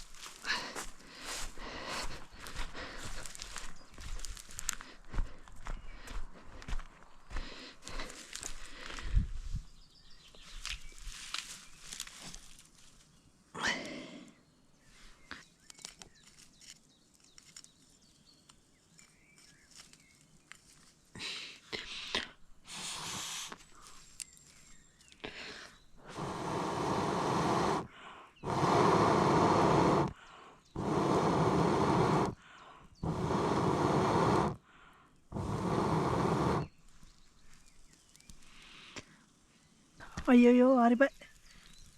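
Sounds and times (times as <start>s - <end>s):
small clicks and rustles: 10.4s - 13.1s, 15.4s - 21.1s, 23.5s - 25.2s
person blowing on a fire: 21.9s - 23.7s, 25.2s - 34.7s, 35.3s - 36.8s.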